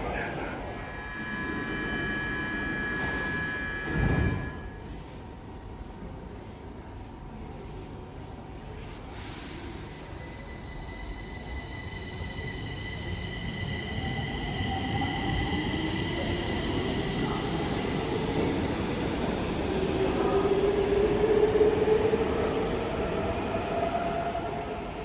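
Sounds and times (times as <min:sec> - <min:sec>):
train rumbling on track: 0:09.0 - 0:25.0.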